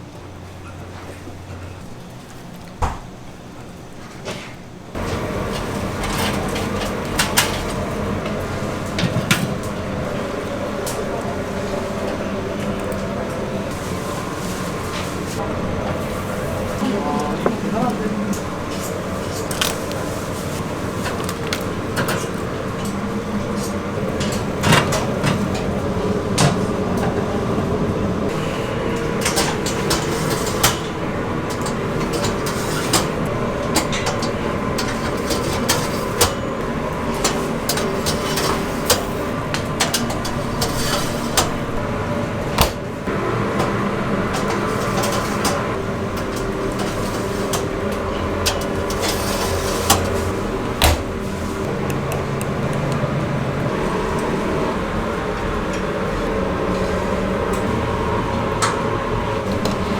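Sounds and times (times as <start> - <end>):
steady mechanical hum: 0.0 - 59.9
utensils and pans clattering: 5.0 - 10.2, 28.4 - 41.8, 43.6 - 51.6.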